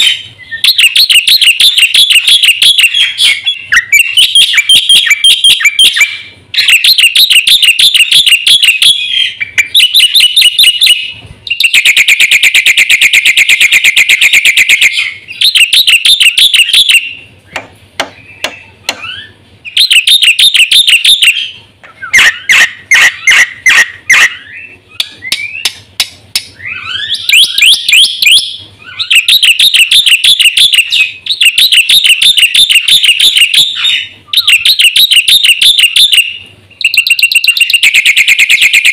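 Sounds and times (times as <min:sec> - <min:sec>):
fast bird trill: 0:00.0 - 0:17.4, 0:18.1 - 0:25.8, 0:26.5 - 0:38.9
bird singing chattering phrases: 0:00.0 - 0:38.9.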